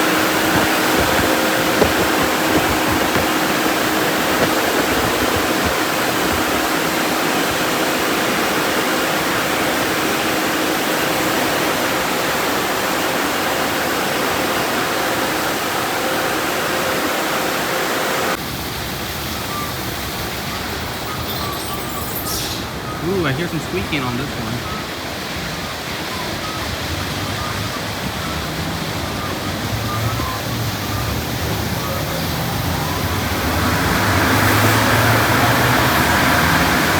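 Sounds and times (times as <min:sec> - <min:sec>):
dryer blowers rushing air: 0:00.0 - 0:08.8, 0:32.9 - 0:36.9.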